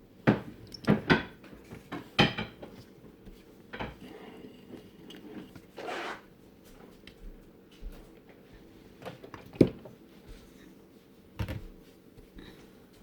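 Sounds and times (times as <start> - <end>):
short scrape: 5.8 - 6.3.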